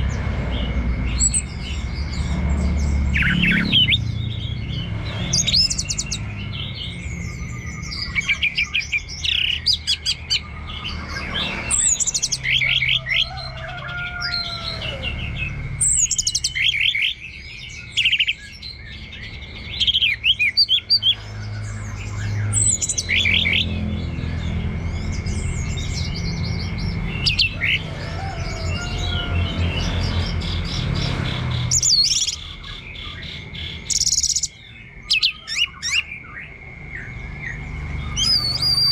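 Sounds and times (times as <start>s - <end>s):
thrush singing: 0.0s - 38.9s.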